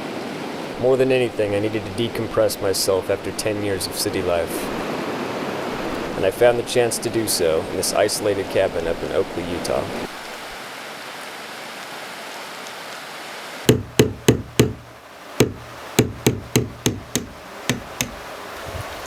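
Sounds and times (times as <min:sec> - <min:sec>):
sharp knocks: 0:13.7 - 0:18.3.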